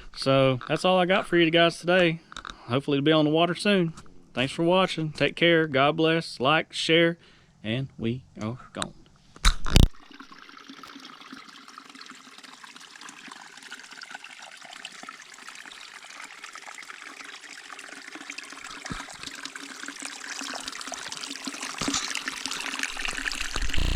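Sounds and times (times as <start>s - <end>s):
water trickling: 9.8s - 23.9s.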